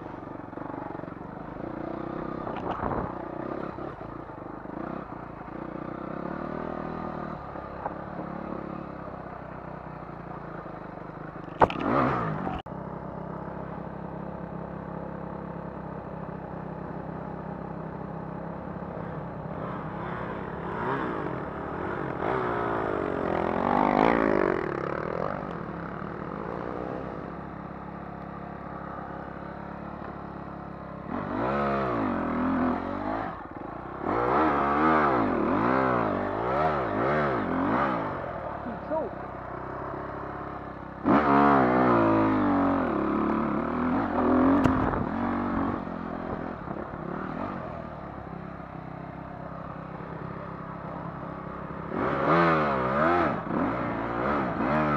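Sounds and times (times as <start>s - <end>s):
dirt bike engine revving: 11.6s - 12.6s, 18.9s - 27.4s, 31.0s - 47.9s, 51.7s - 54.9s.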